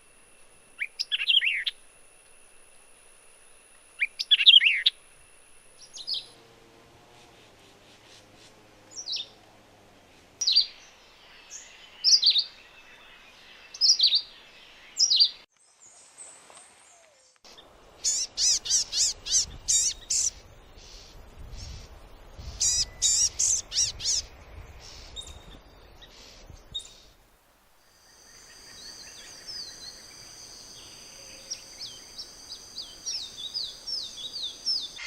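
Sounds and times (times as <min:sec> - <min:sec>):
birds chirping: 0:07.1 - 0:15.9, 0:16.9 - 0:27.2, 0:28.0 - 0:35.0.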